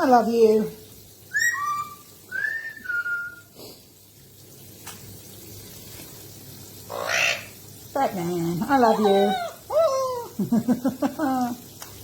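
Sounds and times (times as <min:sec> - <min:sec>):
whistled notes: 0:01.3 - 0:03.5.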